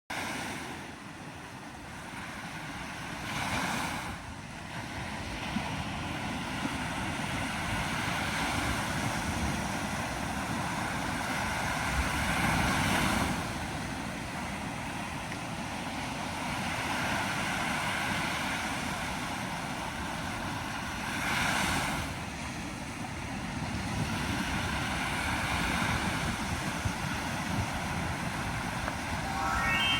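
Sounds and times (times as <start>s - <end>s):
waves breaking on shore: 0.1s - 29.9s
wind on microphone: 1.7s - 15.7s, 23.4s - 29.4s.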